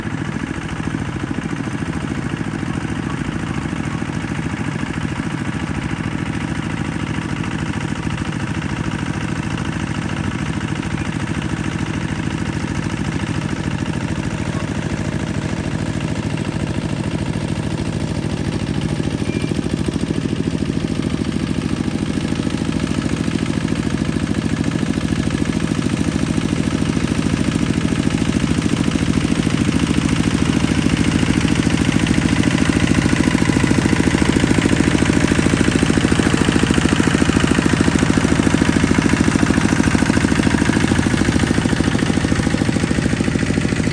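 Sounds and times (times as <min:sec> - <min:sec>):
tractor diesel engine chugging: 0:00.0 - 0:43.9.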